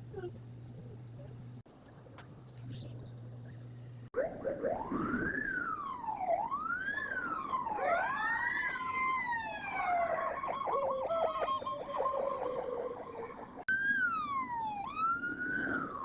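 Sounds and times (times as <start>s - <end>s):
fire truck sirens wailing: 4.2s - 16.0s
siren fast yelp: 4.2s - 16.0s.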